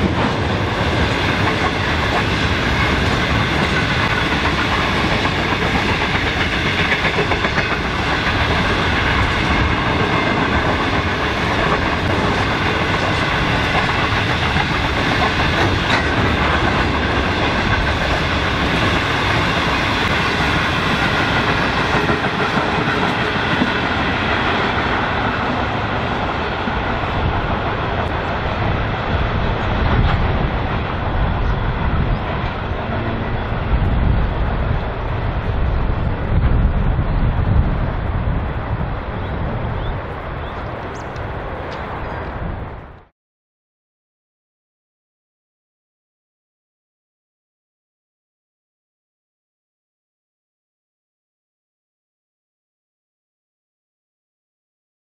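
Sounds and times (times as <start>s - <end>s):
freight train wheels clattering: 0.0s - 33.1s.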